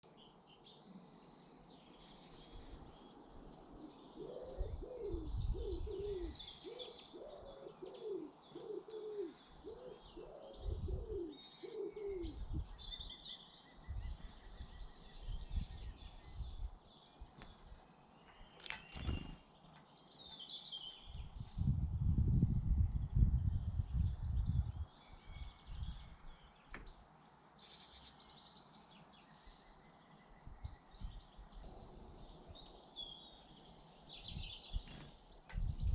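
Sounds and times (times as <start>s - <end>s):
small birds chirping: 0.0s - 35.9s
pigeon cooing: 4.2s - 12.5s.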